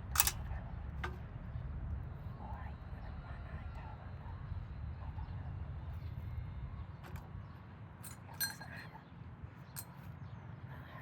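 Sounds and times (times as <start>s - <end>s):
sharp metallic clinks: 0.0s - 0.4s, 8.0s - 8.9s
steady low hum: 0.0s - 11.0s.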